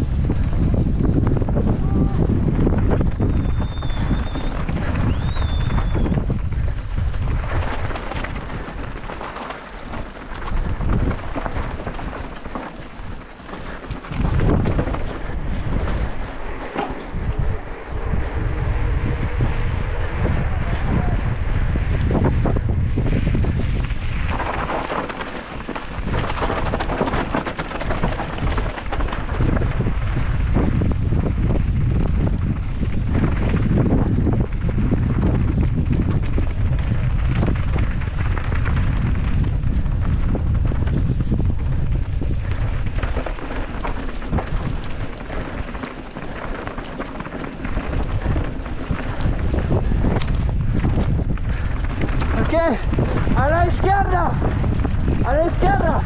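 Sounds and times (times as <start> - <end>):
tyres rattling over rough ground: 0.0 - 56.0
wind buffeting camera: 0.0 - 56.0
high squeal: 5.1 - 6.2.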